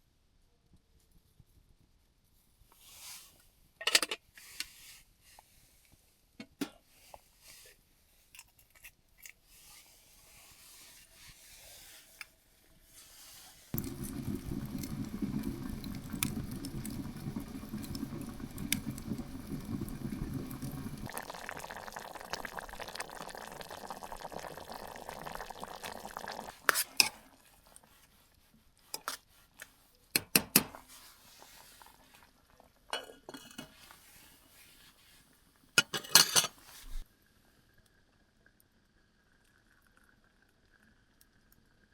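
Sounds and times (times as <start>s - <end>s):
liquid poured into pot: 13.8s - 27.8s, 38.4s - 41.7s
metal pots clinking: 32.9s - 33.8s, 35.8s - 36.6s.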